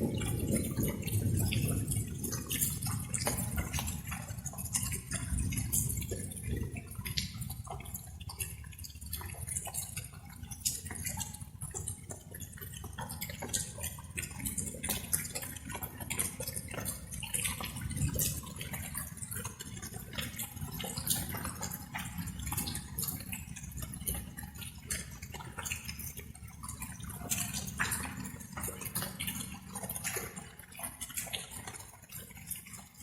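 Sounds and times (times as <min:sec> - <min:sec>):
raindrops pattering and dripping: 0:00.0 - 0:33.0.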